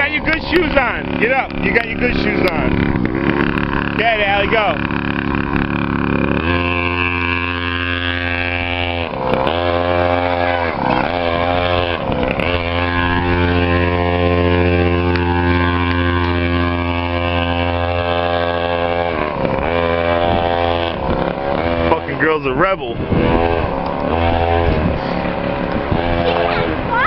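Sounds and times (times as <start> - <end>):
small motorcycle engine revving: 0.0 - 27.0.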